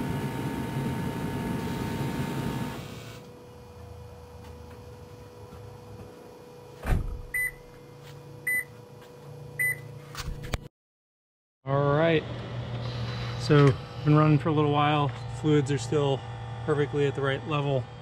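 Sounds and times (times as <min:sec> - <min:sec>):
thump: 0:06.8 - 0:07.3.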